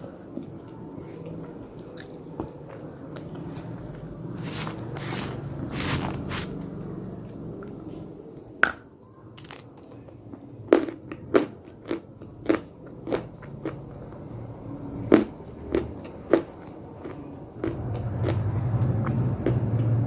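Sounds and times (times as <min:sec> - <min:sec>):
crisp chewing crunches: 0:10.7 - 0:14.2.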